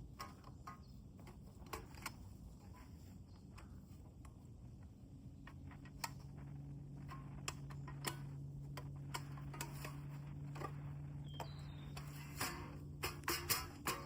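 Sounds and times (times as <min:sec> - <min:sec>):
steady low hum: 0:00.0 - 0:14.0
campfire crackling and popping: 0:03.4 - 0:14.0.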